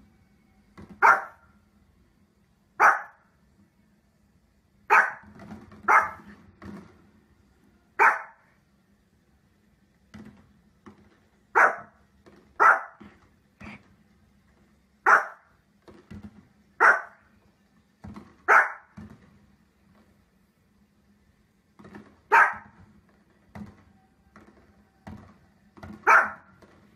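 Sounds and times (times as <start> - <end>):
small dog barking: 1.0 - 1.4, 2.8 - 3.3, 4.9 - 6.3, 8.0 - 8.5, 11.5 - 12.0, 12.6 - 13.1, 15.0 - 15.5, 16.8 - 17.2, 18.5 - 19.0, 22.3 - 22.8, 26.0 - 26.5.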